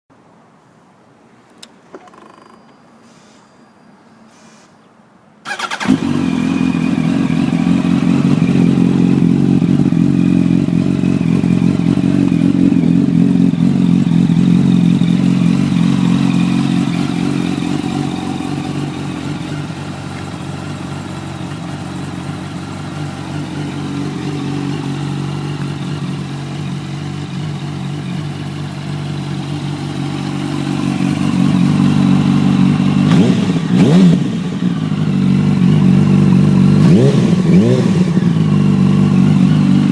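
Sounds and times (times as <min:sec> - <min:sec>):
motorcycle engine idling and revving: 0:05.4 - 0:39.9.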